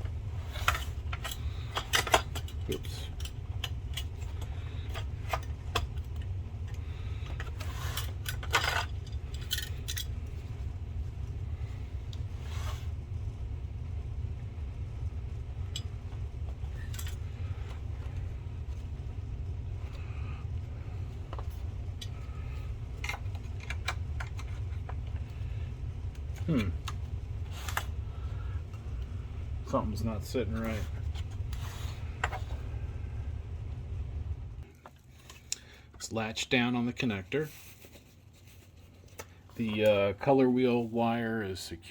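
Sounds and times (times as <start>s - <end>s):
steady low hum: 0.0s - 41.9s
plastic and metal parts clicking: 0.5s - 10.1s, 23.0s - 25.3s.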